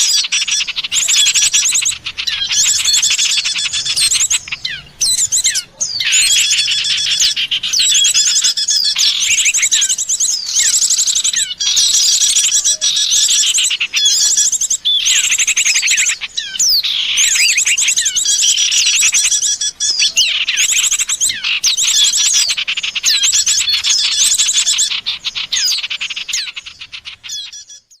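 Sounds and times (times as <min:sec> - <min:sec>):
songbirds chirping and trilling: 0:00.0 - 0:28.0.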